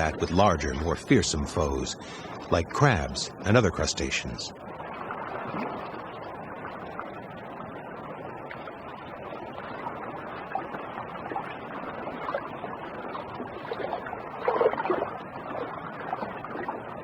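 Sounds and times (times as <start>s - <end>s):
water wash in rock pool: 0.0s - 5.8s, 10.2s - 17.0s.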